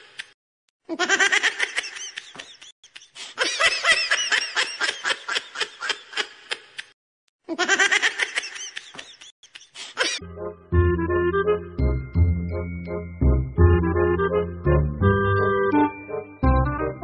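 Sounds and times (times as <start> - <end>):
high-pitched giggling: 7.5 - 10.2.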